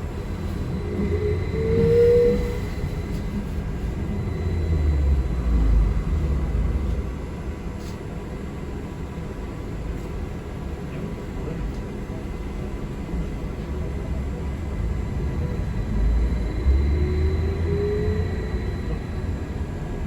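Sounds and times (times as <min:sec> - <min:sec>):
transit vehicle rumble from inside: 0:00.0 - 0:20.0
short steady tone: 0:00.6 - 0:03.2.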